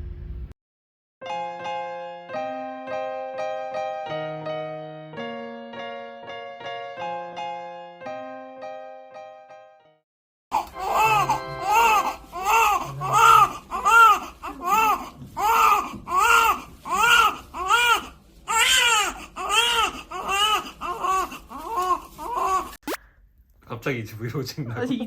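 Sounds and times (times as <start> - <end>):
baby crying: 10.5 - 22.8.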